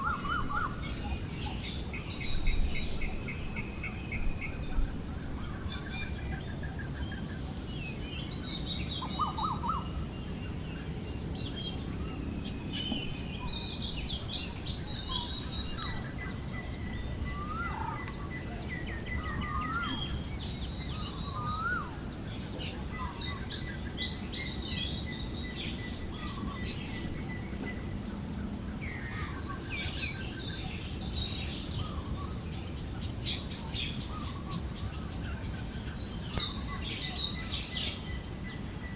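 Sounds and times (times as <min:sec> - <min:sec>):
small birds chirping: 0:00.0 - 0:38.9
high-pitched insect trill: 0:09.0 - 0:38.9.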